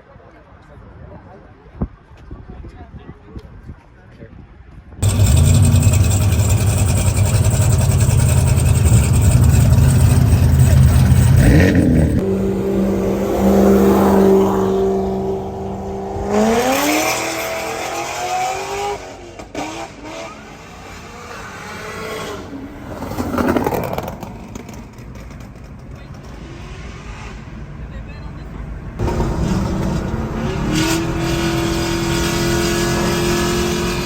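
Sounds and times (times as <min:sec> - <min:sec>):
car engine revving: 0:05.0 - 0:19.0, 0:29.0 - 0:34.0.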